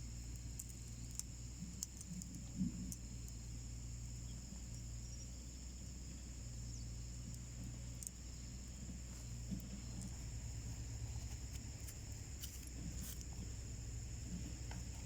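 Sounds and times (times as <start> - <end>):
insects trilling: 0.0 - 15.0
wood fire crackling: 4.2 - 15.0.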